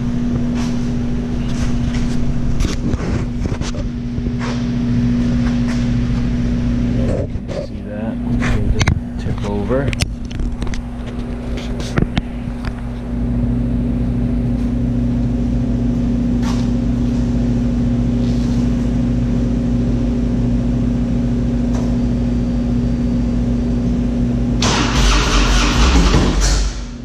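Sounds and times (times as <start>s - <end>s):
electrical hum: 0.0s - 27.0s
motorcycle engine starting: 24.6s - 27.0s.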